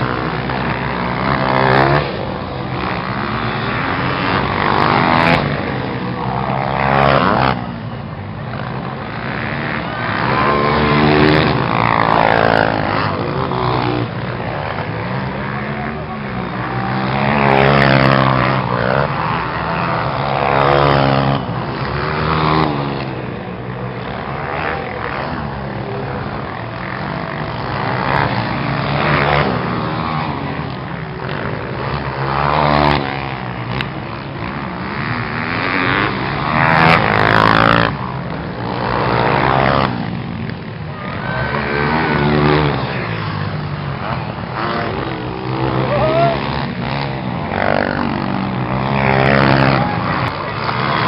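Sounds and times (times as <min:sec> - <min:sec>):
motorcycle engines revving: 0:00.0 - 0:51.0.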